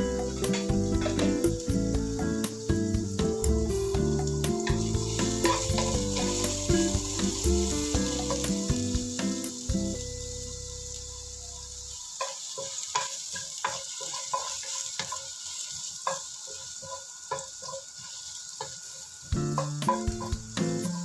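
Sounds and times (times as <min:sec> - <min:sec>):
background music: 0:00.0 - 0:11.5, 0:19.3 - 0:21.0
ginger and garlic sizzling in oil: 0:00.0 - 0:21.0
utensil scraping a pan: 0:04.7 - 0:08.8, 0:12.2 - 0:18.8.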